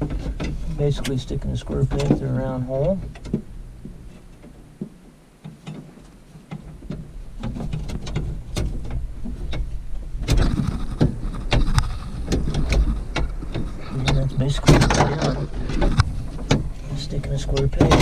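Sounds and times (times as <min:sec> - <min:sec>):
metal knocks and scrapes: 0:00.0 - 0:18.0
low rumble: 0:06.2 - 0:17.9.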